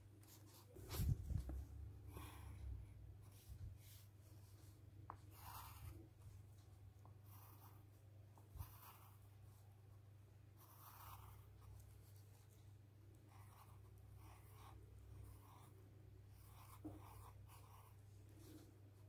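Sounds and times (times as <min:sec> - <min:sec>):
drawing tool scratching on paper: 0:05.1 - 0:06.2, 0:07.0 - 0:09.4, 0:10.6 - 0:12.6, 0:13.3 - 0:18.7.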